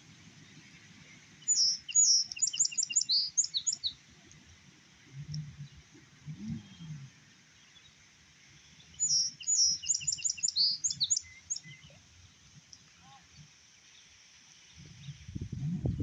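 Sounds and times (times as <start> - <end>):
faint low background noise: 0.0 - 16.0
songbird chirping and trilling: 1.2 - 4.0, 8.6 - 12.0.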